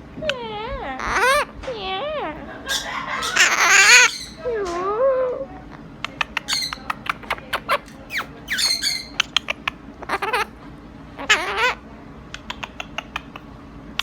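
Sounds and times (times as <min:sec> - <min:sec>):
bird squawks: 0:01.0 - 0:01.5, 0:02.6 - 0:04.5, 0:06.1 - 0:10.6, 0:11.2 - 0:11.8, 0:12.4 - 0:13.4
bird chattering clicks and chirps: 0:06.0 - 0:10.4, 0:12.3 - 0:13.6.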